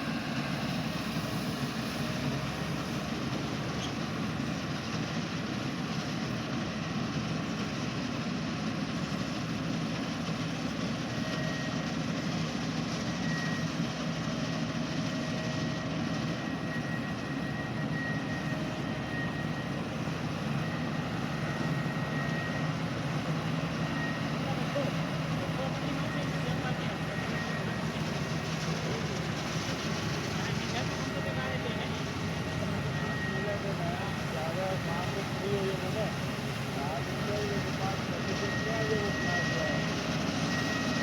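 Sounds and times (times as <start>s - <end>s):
combine harvester engine drone: 0.0s - 41.0s
faint high whine: 16.4s - 41.0s.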